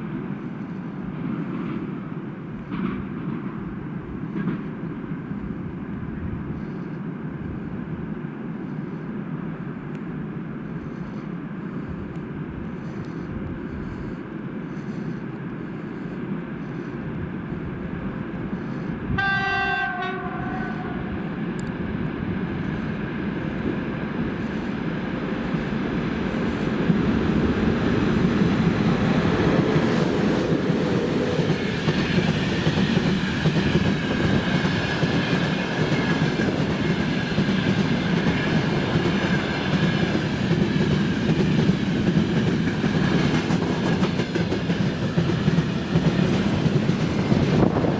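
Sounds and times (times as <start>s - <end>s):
locomotive horn blast: 19.1s - 21.2s
train wheels clattering over rails: 20.1s - 47.9s.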